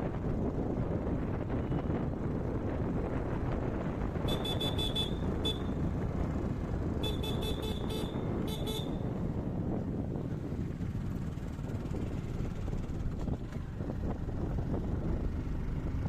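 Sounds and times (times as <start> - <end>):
vehicle rumble: 0.0 - 16.0
high-pitched horn toots: 4.3 - 5.8, 7.0 - 9.0
wind on microphone: 7.6 - 16.0.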